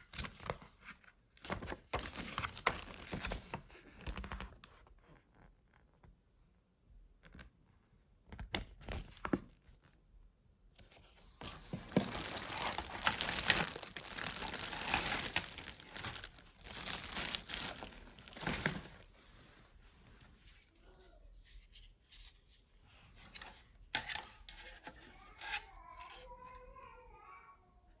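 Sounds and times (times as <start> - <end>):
plastic packaging crinkling: 1.5 - 3.5, 11.4 - 19.1.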